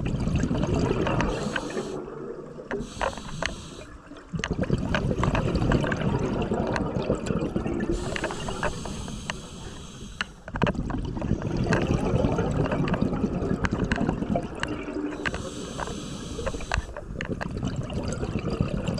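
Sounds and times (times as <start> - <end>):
exhaled bubbles underwater: 0.0 - 18.9
regulator inhale hissing: 1.2 - 2.0, 2.7 - 4.0, 7.9 - 10.5, 15.2 - 17.1.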